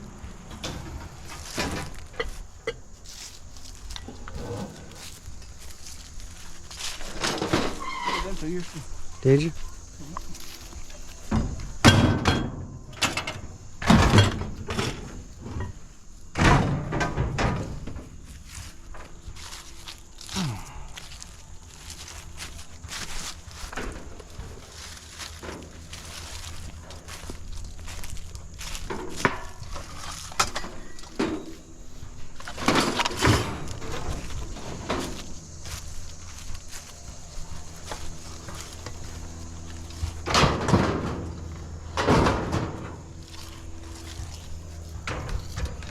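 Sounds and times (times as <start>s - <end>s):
scrap metal clanking into truck bed: 0.0s - 8.4s, 11.4s - 18.1s, 28.8s - 35.8s, 37.4s - 45.9s.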